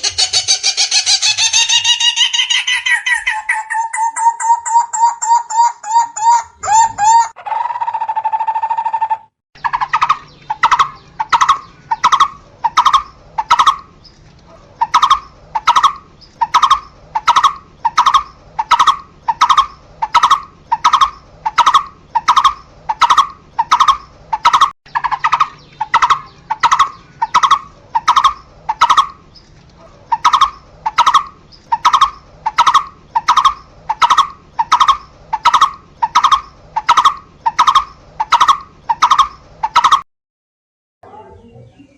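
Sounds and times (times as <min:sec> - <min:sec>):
barbet calling: 0:00.0 - 0:13.9, 0:14.6 - 0:29.3, 0:30.0 - 0:40.0.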